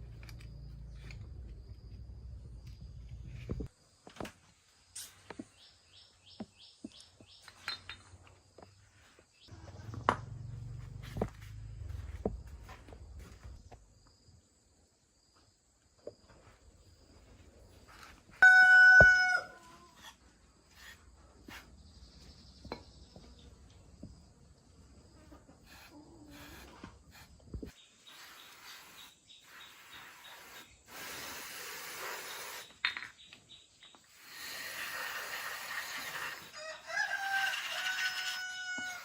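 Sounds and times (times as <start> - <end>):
rooster crowing: 18.4 - 19.8, 36.6 - 39.0.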